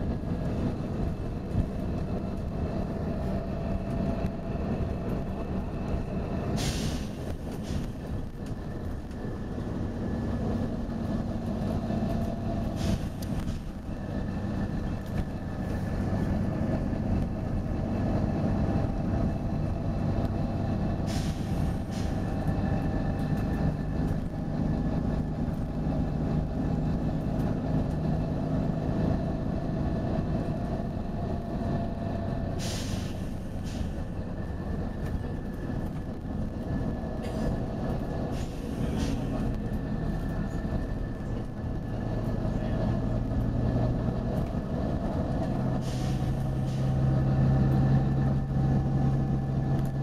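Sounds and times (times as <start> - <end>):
diesel bus engine whining: 0.0 - 50.0
air brake hisses: 6.6 - 8.0, 12.7 - 13.4, 21.0 - 22.2, 32.5 - 34.0, 38.3 - 39.4, 45.7 - 47.0.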